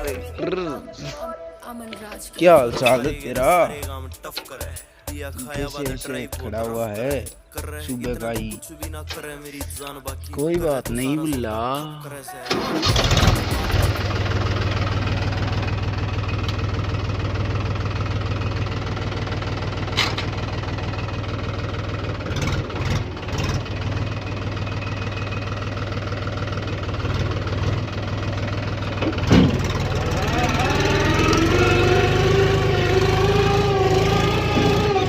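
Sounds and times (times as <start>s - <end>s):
diesel engine idling: 0.0s - 1.0s, 1.7s - 35.0s.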